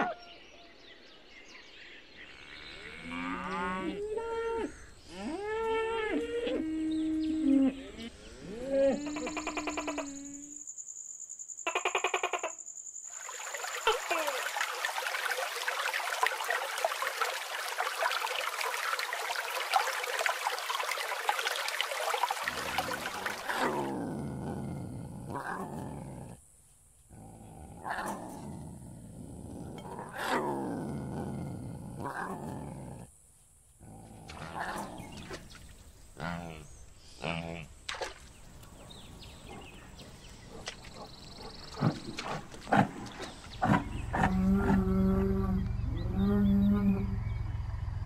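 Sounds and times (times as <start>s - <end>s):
lion roaring and grunting: 23.4s - 26.4s, 27.1s - 33.1s, 41.7s - 47.4s.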